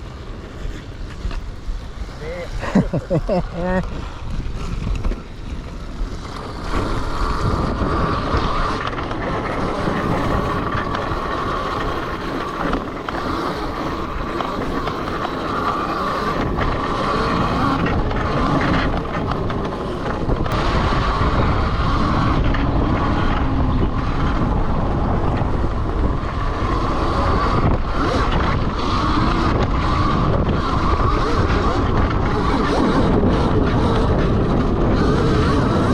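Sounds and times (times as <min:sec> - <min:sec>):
electric drive whine: 0:00.0 - 0:35.9
wind buffeting microphone: 0:00.0 - 0:35.9.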